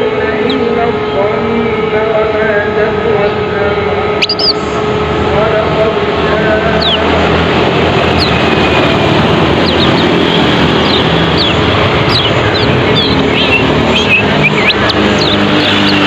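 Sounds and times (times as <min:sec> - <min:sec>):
bird chirping: 0:00.0 - 0:01.4, 0:04.1 - 0:04.7, 0:06.6 - 0:16.0
steady rushing noise: 0:00.0 - 0:16.0.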